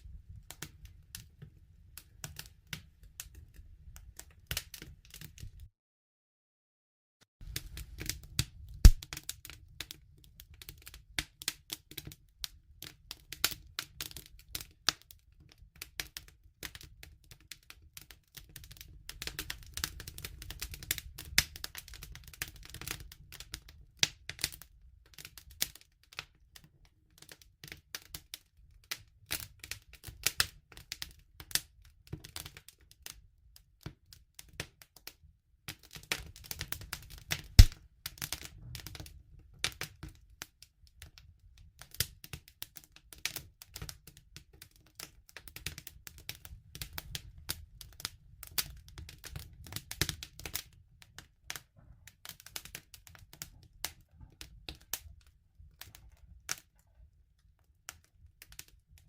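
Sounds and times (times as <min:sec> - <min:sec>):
wood fire crackling: 0:00.0 - 0:05.6, 0:07.4 - 0:15.1, 0:15.8 - 0:26.2, 0:35.7 - 0:41.2, 0:41.8 - 0:56.9.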